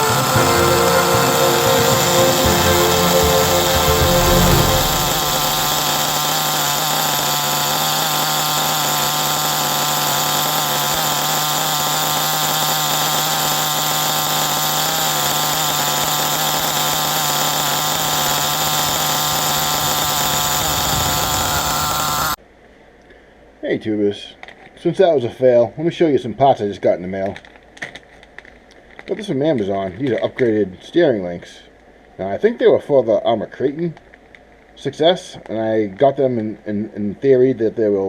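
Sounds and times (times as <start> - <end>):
small two-stroke engine buzzing: 0.0 - 22.4.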